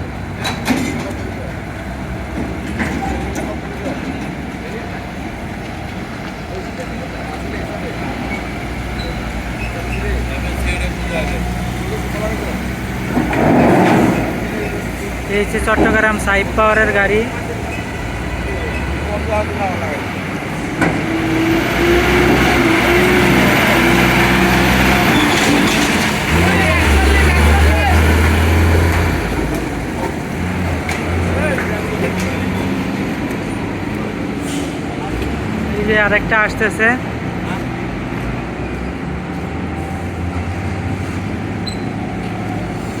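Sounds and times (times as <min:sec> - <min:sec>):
truck engine droning: 0:00.0 - 0:43.0
faint high chirp: 0:41.6 - 0:42.0.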